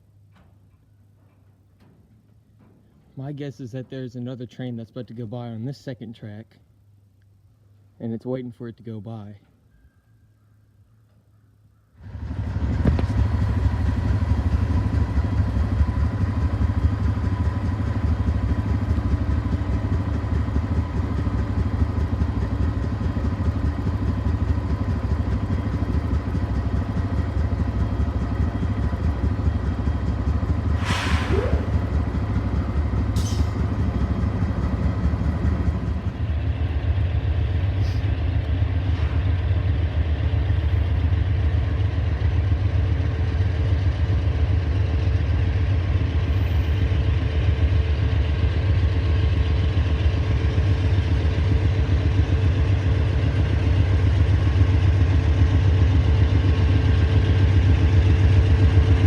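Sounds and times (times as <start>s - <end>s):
diesel locomotive rumbling: 0.0s - 9.4s, 12.0s - 59.0s
brief sharp high sounds: 30.8s - 31.8s.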